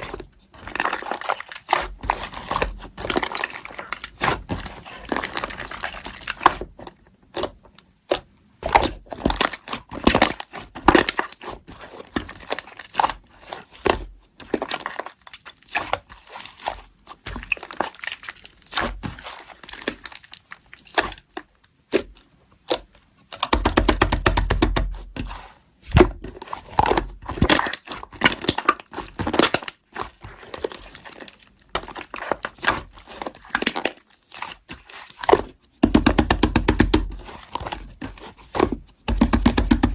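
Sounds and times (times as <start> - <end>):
slime crackling and popping: 0.6 - 6.6.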